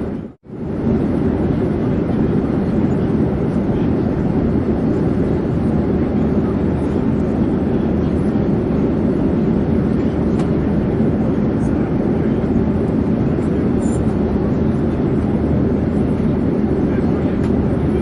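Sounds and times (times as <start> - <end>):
airplane drone in flight: 0.0 - 18.0.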